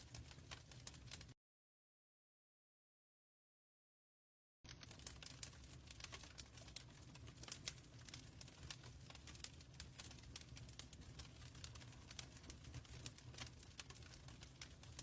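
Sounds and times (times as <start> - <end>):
low rumble of flames: 0.0 - 1.3, 4.7 - 15.0
wood fire crackling: 0.0 - 1.4, 4.7 - 15.0.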